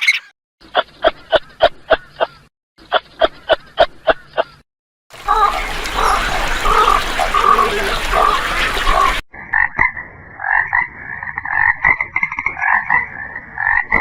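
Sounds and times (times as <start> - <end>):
animal calls: 5.2 - 9.2.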